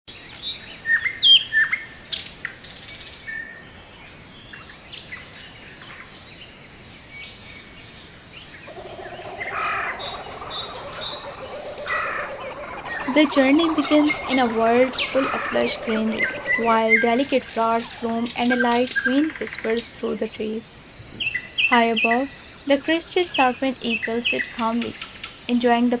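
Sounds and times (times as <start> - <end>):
low pulsing bird call: 8.6 - 20.0
birds chirping and whistling: 8.6 - 20.5
high bird trills: 8.7 - 19.8.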